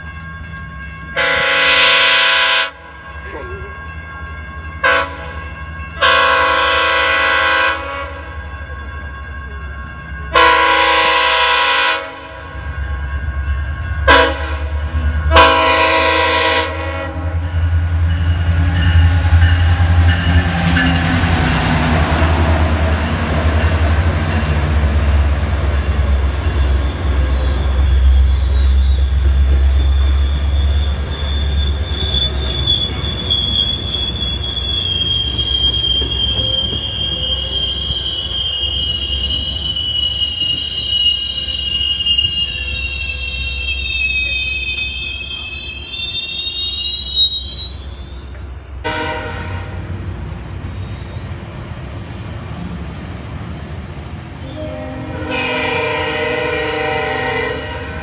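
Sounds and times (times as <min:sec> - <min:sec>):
diesel train passing rumble: 0:00.0 - 0:58.0
train horn blasts: 0:01.2 - 0:02.9, 0:04.8 - 0:05.4, 0:06.0 - 0:08.3, 0:10.3 - 0:12.6, 0:14.0 - 0:17.5, 0:48.8 - 0:49.9, 0:54.4 - 0:58.0
high wheel squeal: 0:21.5 - 0:48.6.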